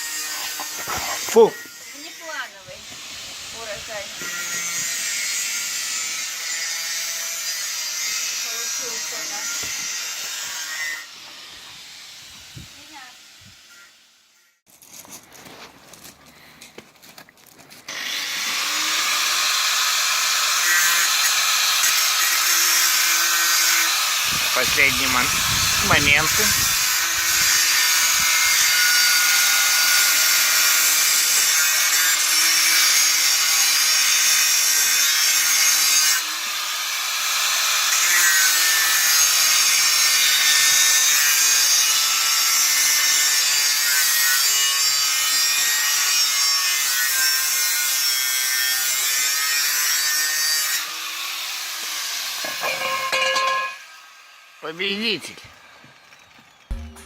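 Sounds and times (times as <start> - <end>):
electric power saw whining: 0.0 - 12.7, 17.9 - 48.9.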